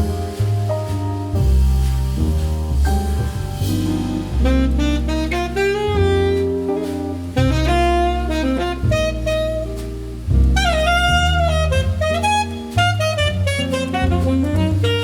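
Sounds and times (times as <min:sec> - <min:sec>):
bass: 0:00.0 - 0:15.0
jazz music: 0:00.0 - 0:15.0
saxophone melody: 0:04.0 - 0:15.0.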